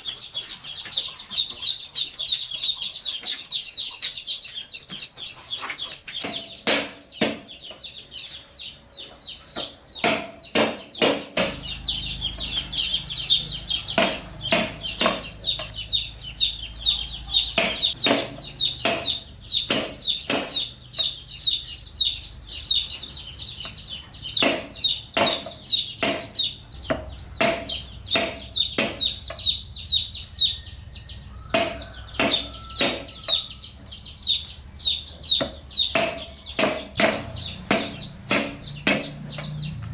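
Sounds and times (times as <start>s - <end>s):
chickens clucking: 0.0s - 39.9s
chicks peeping: 0.0s - 39.9s
sharp knocks: 6.2s - 7.9s, 9.6s - 21.1s, 23.6s - 29.6s, 31.4s - 33.6s, 35.3s - 39.9s.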